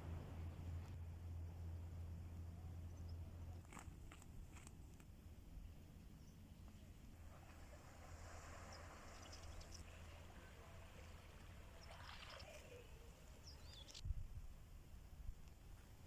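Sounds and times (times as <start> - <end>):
faint sea surf: 0.0 - 3.6, 4.7 - 14.0
low rumble: 0.0 - 3.6.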